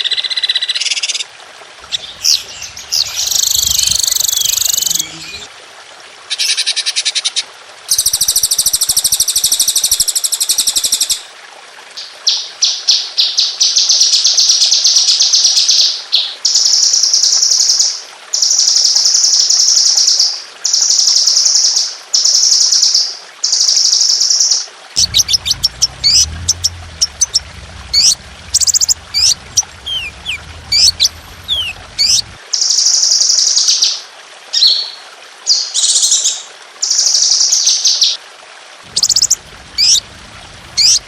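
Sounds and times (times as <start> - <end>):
low hum: 1.8 - 5.5, 25.0 - 32.4, 38.9 - 41.0
whistled bird notes: 1.8 - 5.5, 25.0 - 32.4, 39.0 - 40.0
songbird high-pitched trills: 1.9 - 5.5, 25.0 - 32.3.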